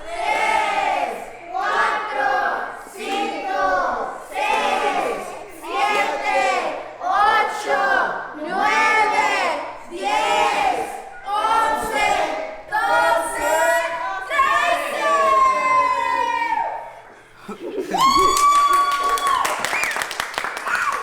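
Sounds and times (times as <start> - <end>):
group chanting in rhythm: 0.0 - 15.8.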